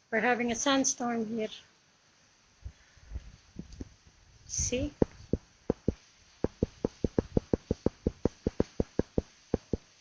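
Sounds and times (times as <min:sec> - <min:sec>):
rapid ringing knocks: 0:05.0 - 0:09.9.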